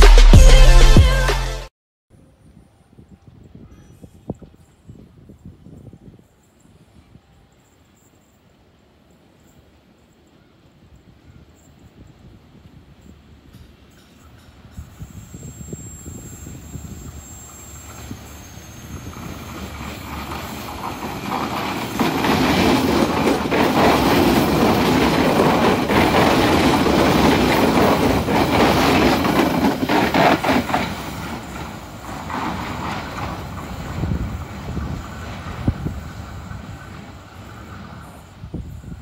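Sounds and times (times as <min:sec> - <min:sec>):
train passing: 0:04.5 - 0:39.0
train wheels clattering on rail joints: 0:17.4 - 0:38.4.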